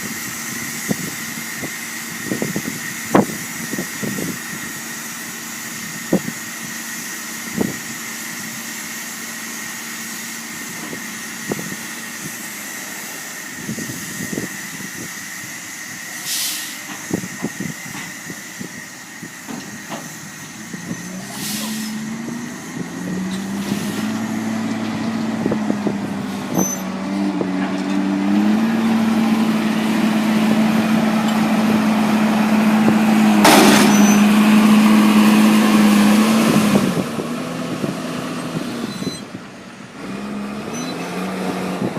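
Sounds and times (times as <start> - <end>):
farm vehicle diesel engine revving: 0.0 - 41.9
short hiss: 12.2 - 17.2.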